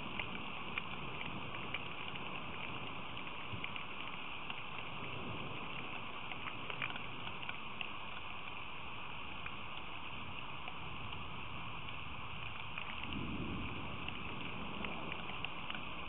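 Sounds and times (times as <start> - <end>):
raindrops ticking close by: 0.0 - 16.0
steady rain falling: 0.0 - 16.0.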